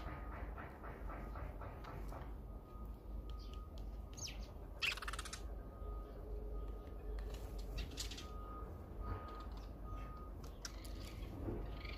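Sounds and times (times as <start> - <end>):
small birds chirping: 2.9 - 11.9.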